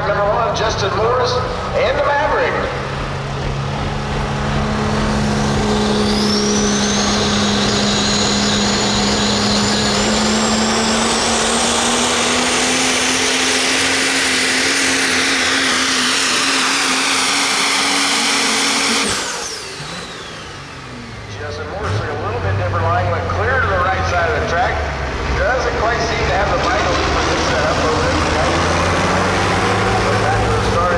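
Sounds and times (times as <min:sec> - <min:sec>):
truck engine at full throttle: 0:00.0 - 0:30.9
high whine: 0:01.8 - 0:22.0.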